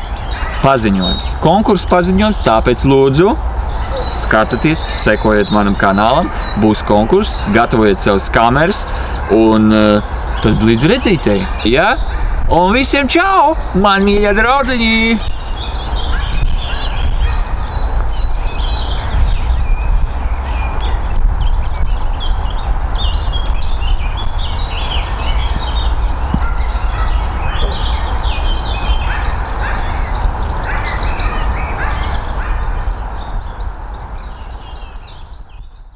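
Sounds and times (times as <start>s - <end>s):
dense bird chorus: 0.0s - 35.9s
steady low rumble: 15.2s - 30.7s.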